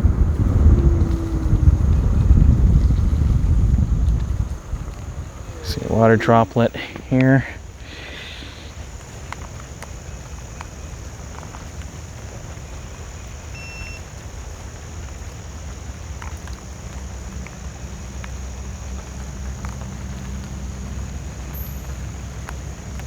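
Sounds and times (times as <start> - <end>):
wind on microphone: 0.0 - 10.1
scooter tyres rumbling: 0.0 - 13.5
high insect drone: 0.0 - 23.0
light ticks from bumps: 0.0 - 23.0.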